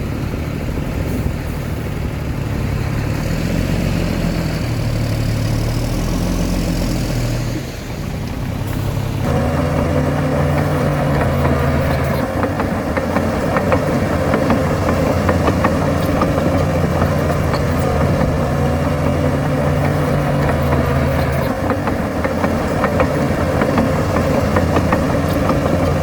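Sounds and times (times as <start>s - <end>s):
diesel engine running: 0.0s - 26.0s
light metal clanks and knocks: 8.7s - 26.0s.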